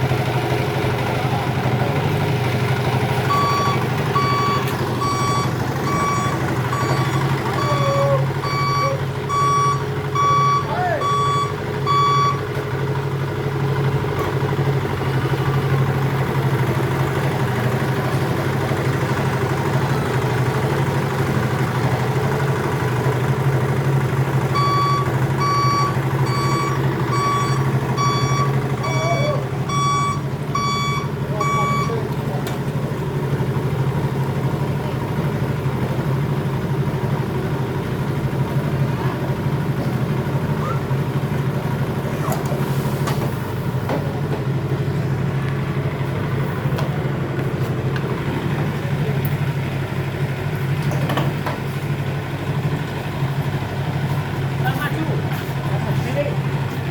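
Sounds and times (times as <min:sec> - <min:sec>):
diesel truck engine running: 0:00.0 - 0:56.9
reversing beeper: 0:03.2 - 0:12.5, 0:24.5 - 0:32.0.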